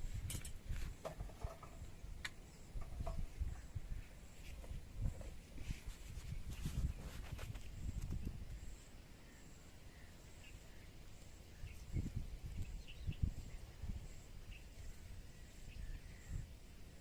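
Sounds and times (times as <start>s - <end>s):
bird chirps: 8.7s - 16.5s.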